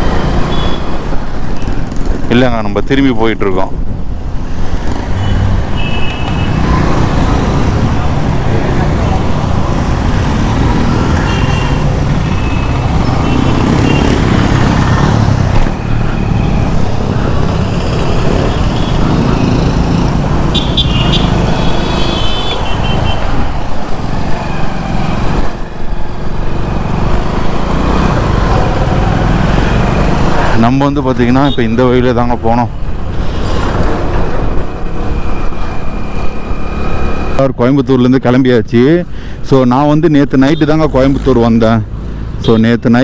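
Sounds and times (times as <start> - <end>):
road traffic: 0.0 - 43.0
vehicle horn toots: 0.5 - 0.9, 5.8 - 6.6, 11.2 - 11.8, 20.5 - 23.3
motorcycle engine: 4.4 - 37.3.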